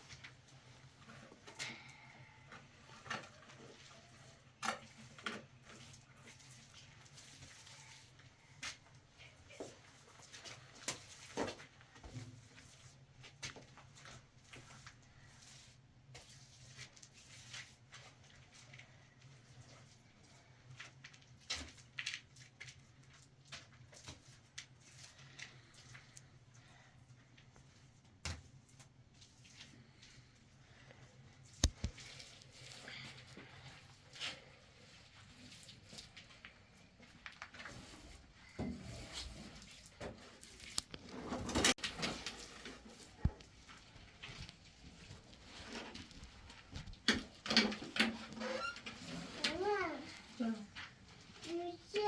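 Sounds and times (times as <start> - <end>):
faint clicks and taps: 31.6 - 32.0.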